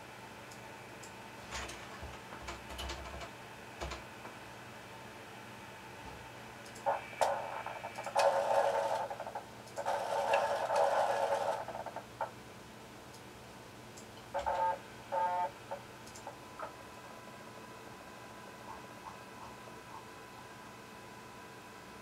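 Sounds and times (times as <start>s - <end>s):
sharp clicks: 16.0s - 16.3s.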